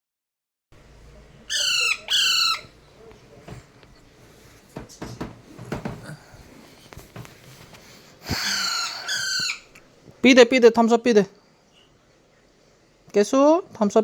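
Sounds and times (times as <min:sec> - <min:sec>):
parrot squawking: 0:01.5 - 0:02.8, 0:08.3 - 0:09.8.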